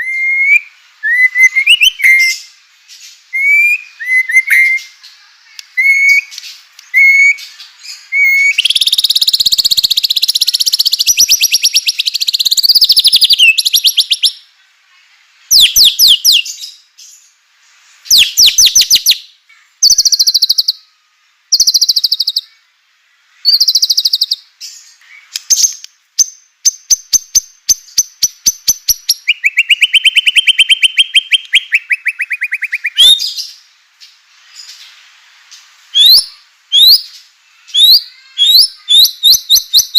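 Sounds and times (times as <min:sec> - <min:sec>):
bird singing varied phrases: 0:00.0 - 0:14.5, 0:15.5 - 0:17.4, 0:18.1 - 0:22.7, 0:23.4 - 0:33.8, 0:35.9 - 0:39.9.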